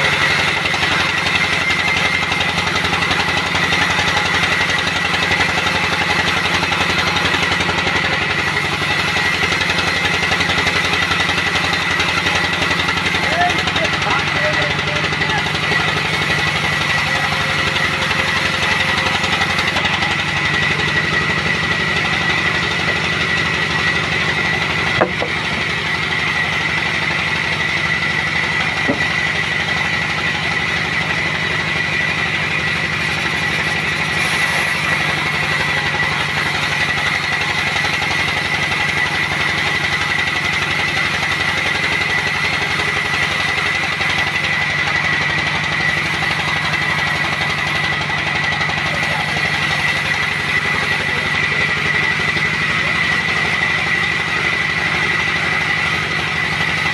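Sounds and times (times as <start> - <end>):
sawmill motor drone and whine: 0.0 - 56.9
sharp knocks: 25.0 - 25.7.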